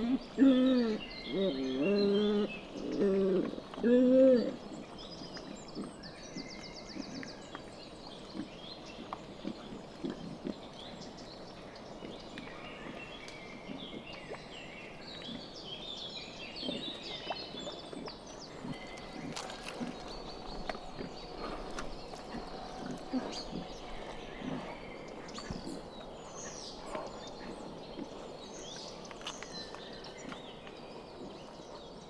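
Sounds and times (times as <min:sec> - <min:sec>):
birds chirping: 0:00.0 - 0:32.0
pigs grunting softly: 0:16.6 - 0:28.8.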